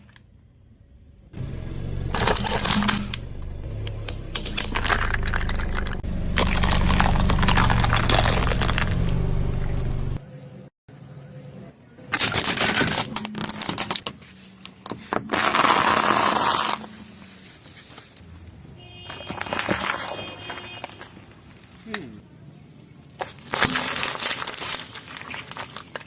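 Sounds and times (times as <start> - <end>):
crunching under car tyre: 2.1 - 9.5, 23.1 - 26.0.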